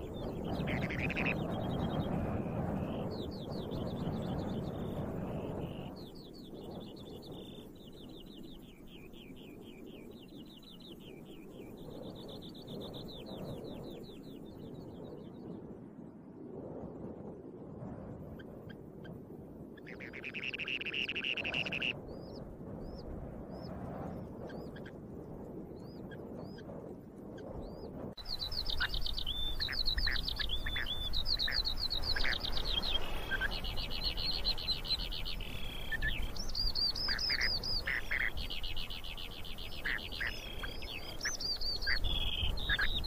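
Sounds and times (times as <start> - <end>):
rapid pulsed bird trills: 0.0 - 15.1, 19.8 - 22.4, 28.2 - 43.0
bird upslurred chirps: 0.5 - 1.4, 19.9 - 22.0, 28.2 - 43.0.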